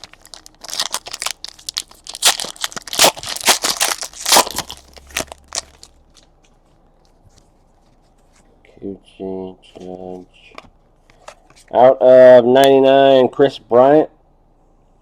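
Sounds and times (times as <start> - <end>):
plastic wrapper crinkling and tearing: 0.0 - 6.6.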